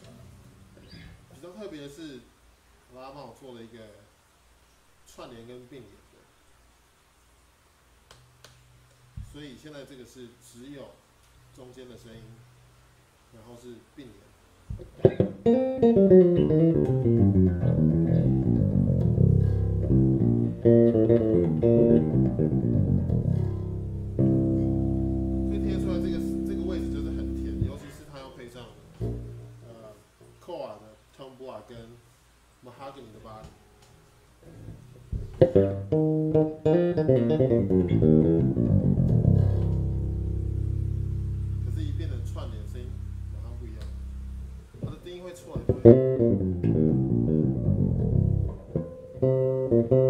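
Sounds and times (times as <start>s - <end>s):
electric bass plucked notes: 14.8s - 27.9s, 29.0s - 29.6s, 35.2s - 45.0s, 45.6s - 50.0s.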